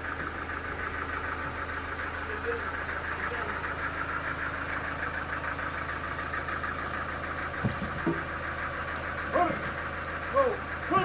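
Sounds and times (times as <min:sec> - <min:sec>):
machine engine humming and pulsing: 0:00.0 - 0:11.0.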